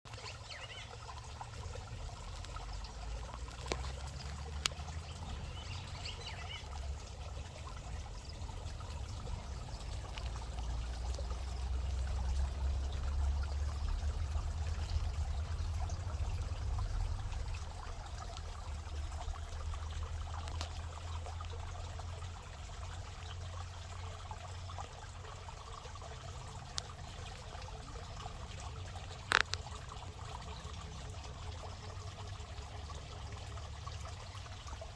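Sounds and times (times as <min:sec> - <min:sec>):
water trickling: 0:00.1 - 0:34.9
steady low rumble: 0:01.7 - 0:20.4.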